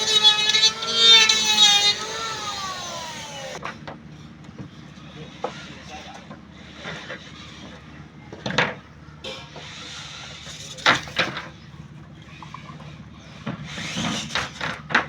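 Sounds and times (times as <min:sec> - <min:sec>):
engine running: 0:00.0 - 0:04.9.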